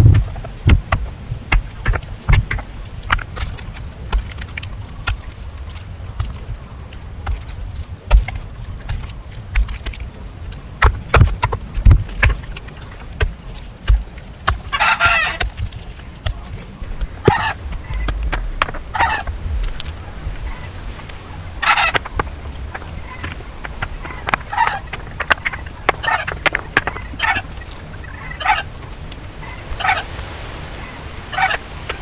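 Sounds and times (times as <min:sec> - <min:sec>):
knocks and thumps of hand work: 0:00.0 - 0:19.8
high-pitched insect drone: 0:01.0 - 0:16.8.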